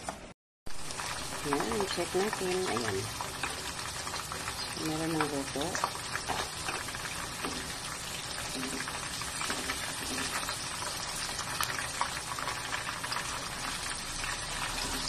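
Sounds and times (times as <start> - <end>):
chicken frying in oil: 0.7 - 15.0.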